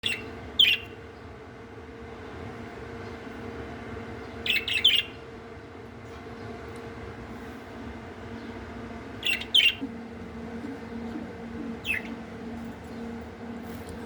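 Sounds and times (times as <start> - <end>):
faint steady hum: 0.0 - 14.0
budgerigars chirping: 4.5 - 5.2, 9.2 - 13.2.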